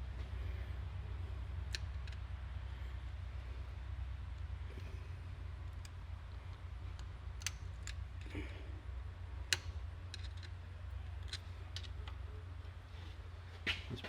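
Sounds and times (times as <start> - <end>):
steady low hum: 0.0 - 14.0
small metallic clicks and ticks: 1.6 - 2.3, 5.6 - 8.4, 9.4 - 12.2.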